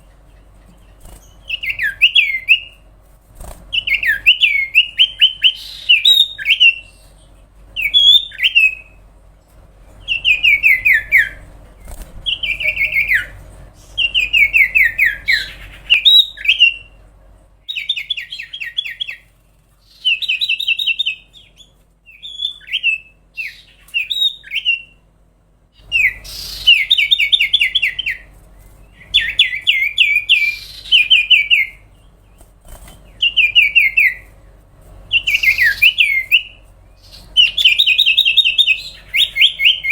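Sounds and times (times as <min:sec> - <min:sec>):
bird singing downward notes: 0:10.0 - 0:11.5, 0:25.8 - 0:28.3, 0:29.0 - 0:32.2, 0:33.1 - 0:34.3, 0:35.1 - 0:39.9.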